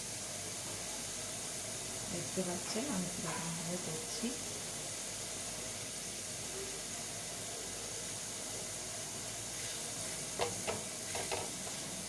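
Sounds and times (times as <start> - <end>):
meat sizzling in butter: 0.0 - 12.0
utensil tapping a pan: 10.4 - 11.8.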